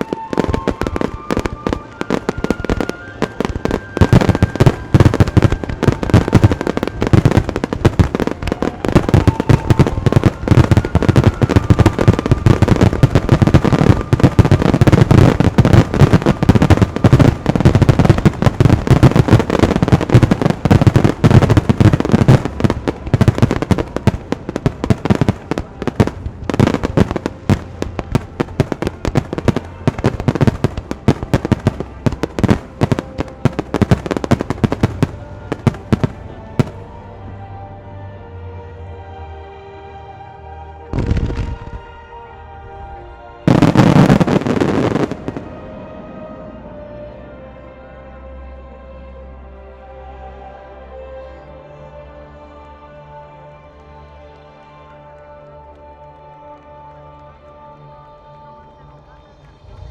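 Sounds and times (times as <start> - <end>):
fireworks bursting: 0.0 - 36.9, 41.0 - 41.8, 43.5 - 45.6.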